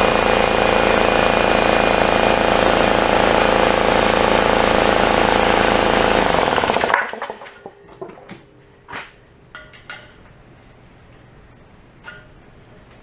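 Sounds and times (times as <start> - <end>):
air compressor clattering: 0.0 - 10.3.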